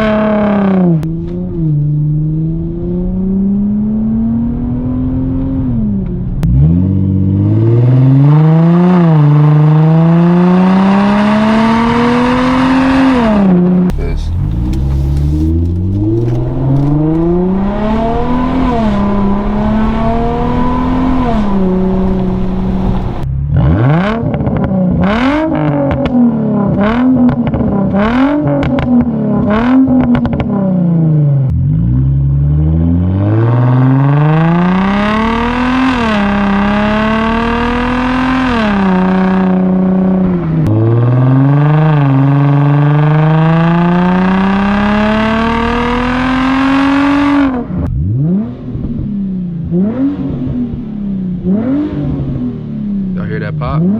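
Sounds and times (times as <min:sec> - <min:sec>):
car engine accelerating through gears: 0:00.0 - 0:53.9
engine revving: 0:00.0 - 0:53.9.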